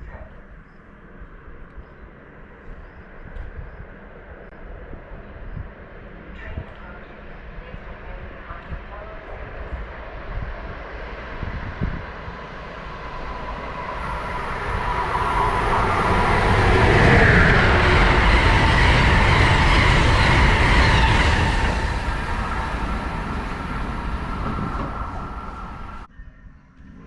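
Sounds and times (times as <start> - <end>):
train wheels rushing on rails: 9.3 - 26.1
steady whine: 10.9 - 26.1.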